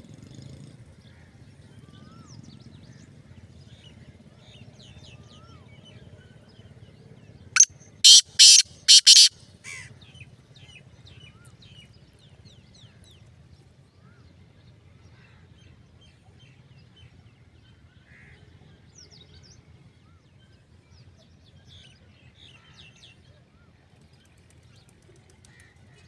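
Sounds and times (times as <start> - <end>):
small birds chirping and whistling: 7.6 - 9.3
francolin harsh call: 7.6 - 9.9.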